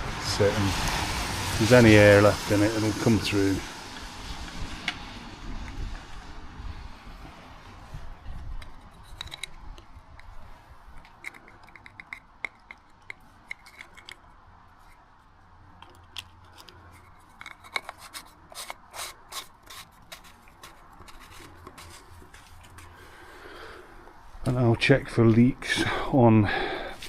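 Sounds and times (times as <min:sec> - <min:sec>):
light scraping of tools: 0:15.8 - 0:23.2.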